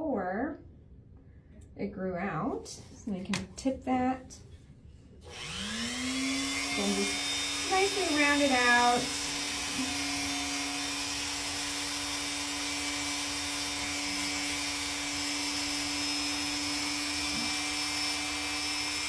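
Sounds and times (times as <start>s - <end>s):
rotary nail grinder running: 5.2s - 19.0s.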